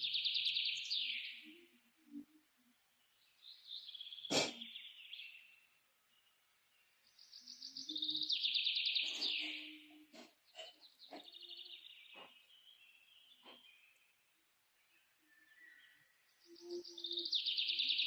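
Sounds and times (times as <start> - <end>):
bird chirps: 0.0 - 18.0.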